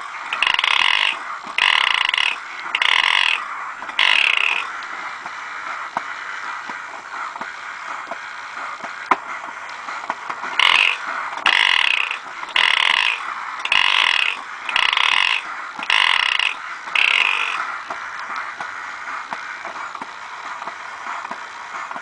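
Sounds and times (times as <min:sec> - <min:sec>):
toy mechanism whirring and clicking: 0:00.0 - 0:22.0
toy squeaky calls: 0:00.3 - 0:03.4, 0:04.0 - 0:04.6, 0:10.6 - 0:17.6.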